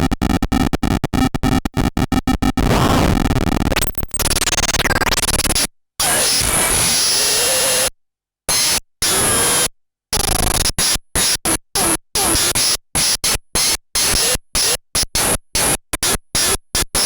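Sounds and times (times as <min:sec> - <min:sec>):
harsh electronic noise: 0:02.6 - 0:05.2.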